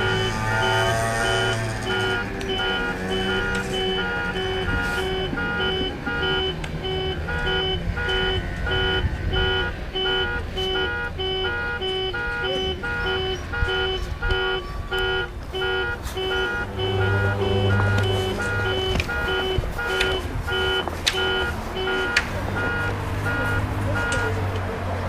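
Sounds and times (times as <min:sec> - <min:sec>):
electronic beeper beeping: 0:00.0 - 0:24.3.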